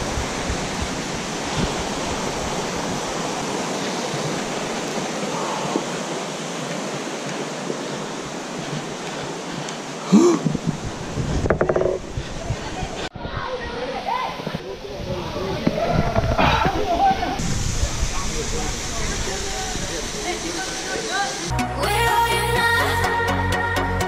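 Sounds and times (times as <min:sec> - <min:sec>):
waterfall rushing: 0:00.0 - 0:13.1, 0:13.8 - 0:22.3
short vocal sound: 0:10.1 - 0:10.7.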